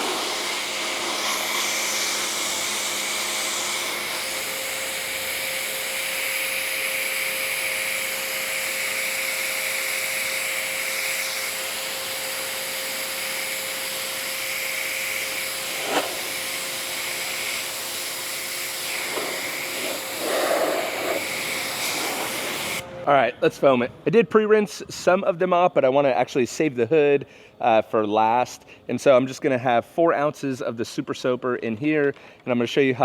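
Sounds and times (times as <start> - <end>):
water spray hissing: 0.0 - 22.8
pressure washer motor whine: 0.0 - 23.0.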